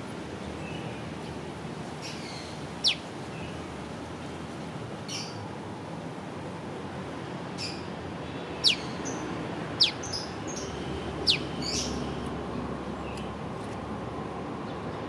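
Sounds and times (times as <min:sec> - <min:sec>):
faint bird chirps: 0:08.6 - 0:09.0, 0:09.8 - 0:10.3, 0:11.3 - 0:12.0.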